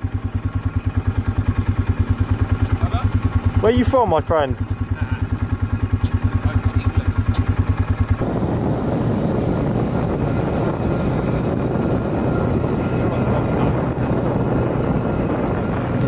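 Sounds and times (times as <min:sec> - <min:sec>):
quad bike engine: 0:00.0 - 0:16.0.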